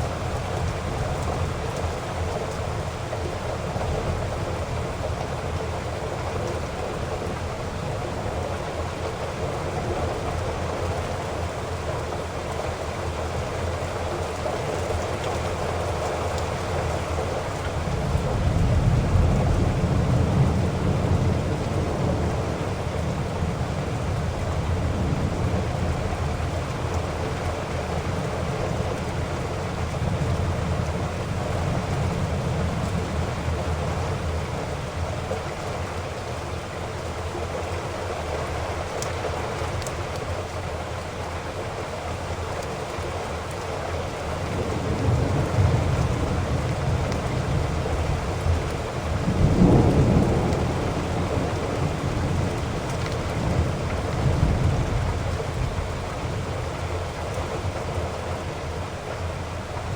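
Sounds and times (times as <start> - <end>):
heavy rain: 0.0 - 59.9
thunder rumbling: 16.4 - 38.6, 44.0 - 59.9.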